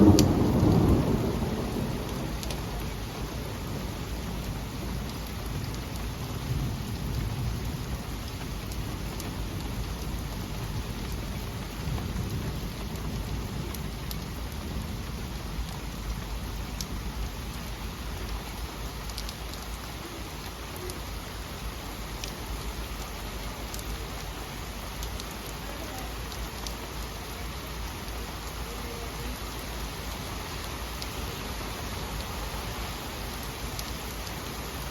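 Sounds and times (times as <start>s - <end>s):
thunder rumbling: 0.0s - 17.3s
heavy rain: 0.0s - 34.9s.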